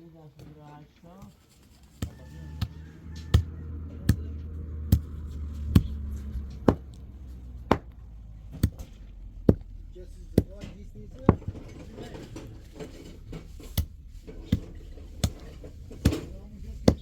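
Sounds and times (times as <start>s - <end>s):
low hum: 2.1s - 17.0s
sharp knocks: 3.2s - 17.0s.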